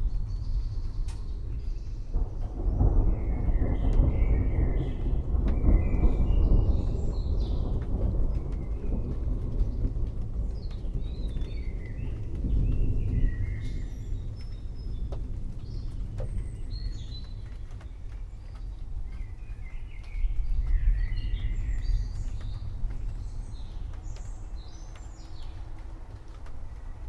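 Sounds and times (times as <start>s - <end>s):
low rolling thunder: 0.0s - 27.0s
small birds chirping: 10.5s - 27.0s.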